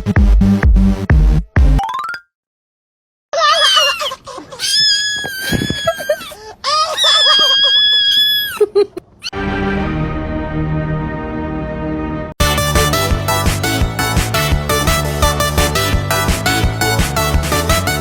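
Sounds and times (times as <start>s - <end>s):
music: 0.0s - 1.8s, 9.3s - 18.0s
high-pitched screaming voice: 3.4s - 8.6s.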